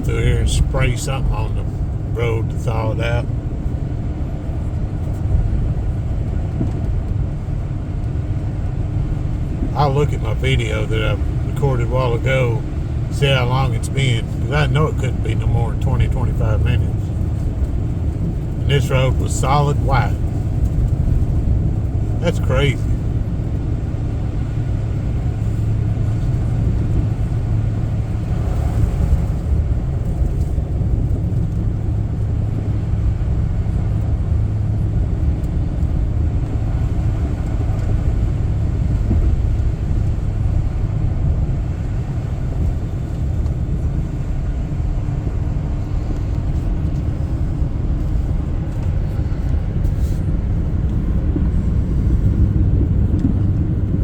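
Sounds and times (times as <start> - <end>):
vehicle driving rumble: 0.0 - 54.0.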